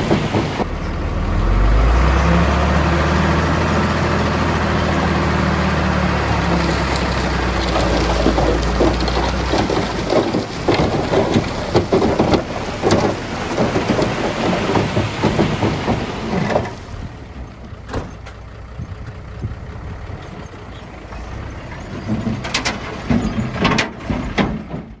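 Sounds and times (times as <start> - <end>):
stones and dirt clattering: 0.0 - 17.1
machinery engine noise: 0.0 - 25.0.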